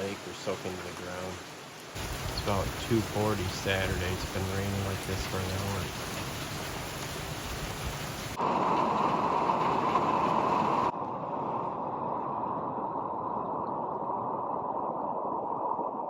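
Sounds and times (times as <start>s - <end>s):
heavy rain falling: 0.0s - 10.9s.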